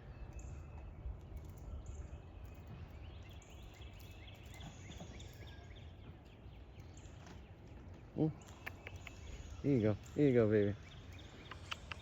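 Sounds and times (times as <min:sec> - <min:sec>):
quick bird chirps: 0:10.8 - 0:12.0.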